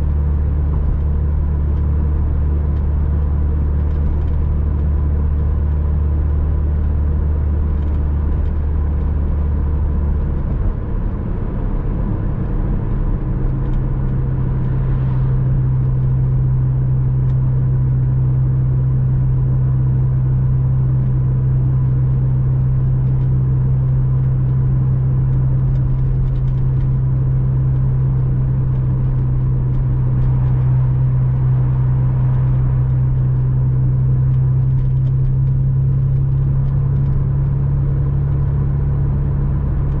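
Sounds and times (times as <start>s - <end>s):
car engine: 0.0s - 40.0s
tyre and road noise: 0.0s - 40.0s.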